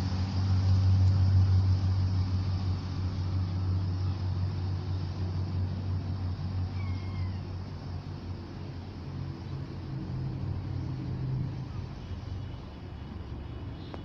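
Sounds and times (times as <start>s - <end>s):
diesel train drone: 0.0s - 14.0s
faint high squeal: 6.7s - 7.6s.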